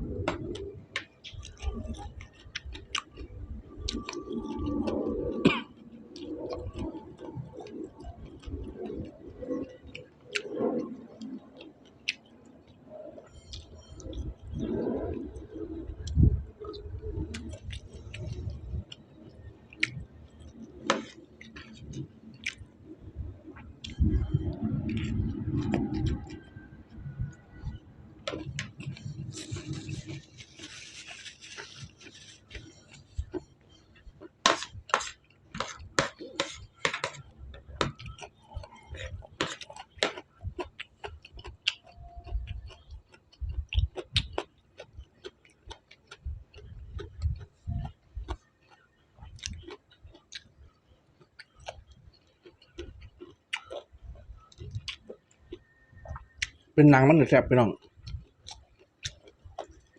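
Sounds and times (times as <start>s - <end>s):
crunching bites and chewing: 28.3s - 56.7s, 57.8s - 59.9s.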